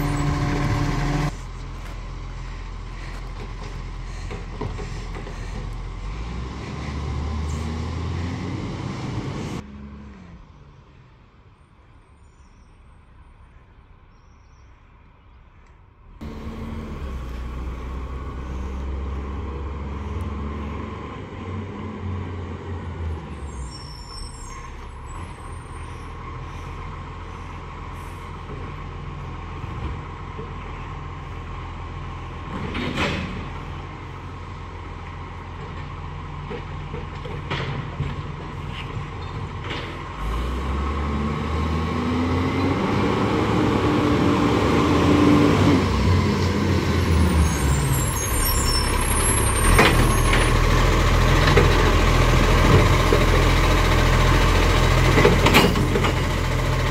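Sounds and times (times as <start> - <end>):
garbage truck engine revving: 0.0 - 10.4, 16.2 - 23.7, 39.5 - 56.9.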